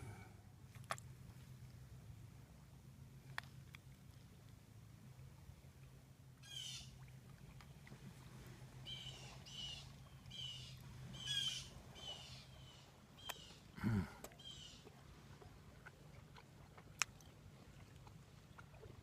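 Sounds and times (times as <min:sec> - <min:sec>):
bird calling: 0:06.4 - 0:07.0, 0:08.8 - 0:13.7, 0:14.4 - 0:14.9.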